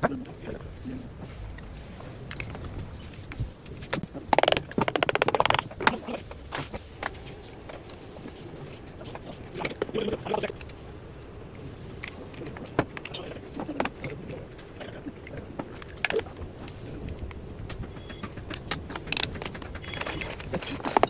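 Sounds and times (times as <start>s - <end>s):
tools and metal parts clinking: 18.1s - 21.0s.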